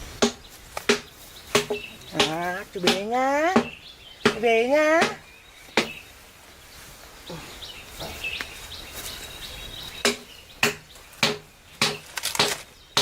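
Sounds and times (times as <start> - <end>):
birds chirping faintly: 0.0 - 13.0
sharp tool knocks: 0.2 - 3.0, 10.0 - 13.0.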